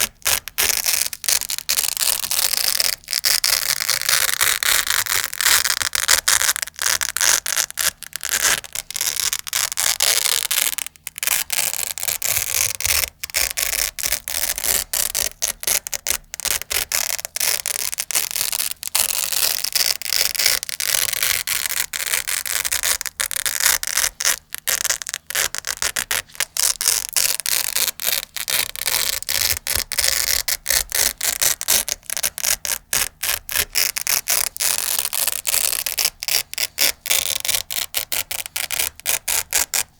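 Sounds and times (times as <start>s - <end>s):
velcro ripping: 0.0s - 39.9s.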